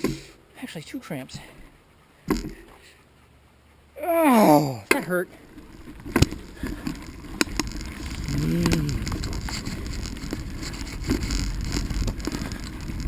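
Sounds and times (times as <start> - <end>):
bicycle tyre rumble: 5.3 - 13.0
wind on microphone: 6.0 - 13.0.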